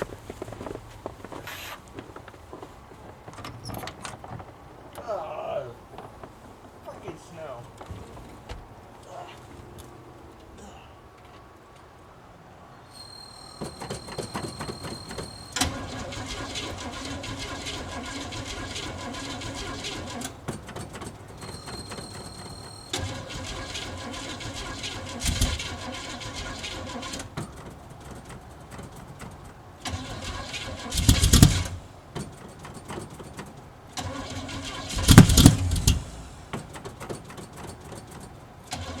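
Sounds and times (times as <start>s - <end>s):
starter cranking engine: 13.0s - 39.0s.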